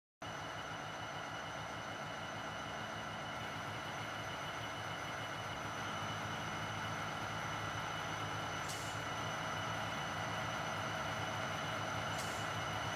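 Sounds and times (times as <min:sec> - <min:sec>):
diesel locomotive engine rumble: 0:00.2 - 0:12.9.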